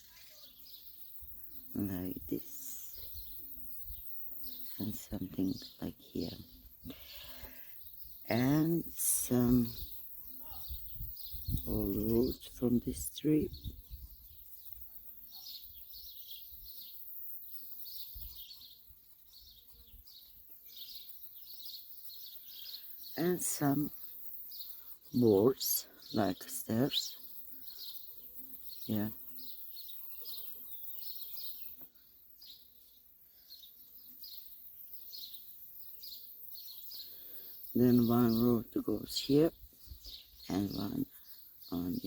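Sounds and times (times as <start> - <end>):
songbirds chirping: 0.0 - 42.0.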